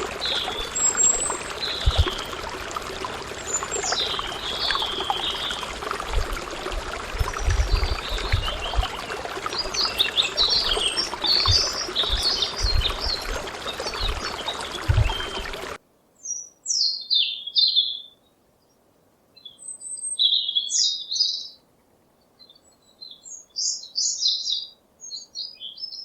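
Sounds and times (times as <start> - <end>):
birds chirping: 0.0 - 15.8
low thumps: 0.0 - 15.8
water trickling: 0.0 - 15.8.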